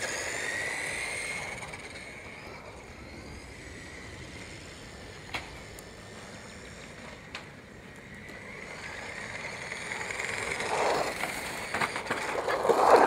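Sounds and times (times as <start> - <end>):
toy car motor whine: 0.0 - 7.3, 8.0 - 13.0
tyres on gravel: 5.3 - 13.0.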